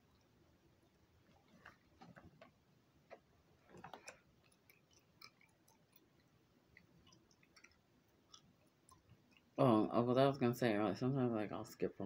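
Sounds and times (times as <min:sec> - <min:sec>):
gum chewing: 0:03.1 - 0:09.6.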